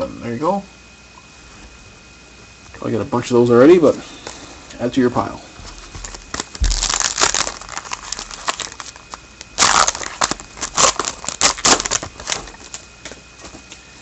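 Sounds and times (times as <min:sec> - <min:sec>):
wrapper crinkling and tearing: 0:05.8 - 0:13.6.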